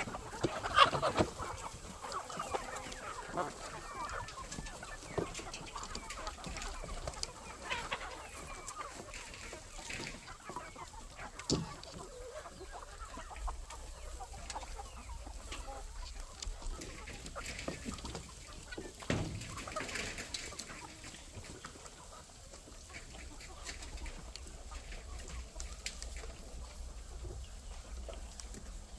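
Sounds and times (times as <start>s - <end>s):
chickens clucking: 0.0s - 28.9s.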